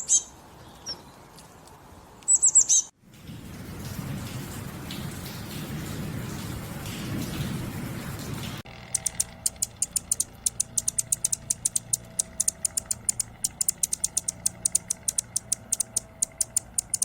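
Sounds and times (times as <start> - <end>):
rain hiss: 3.0 - 17.0
small bird chipping: 9.0 - 17.0.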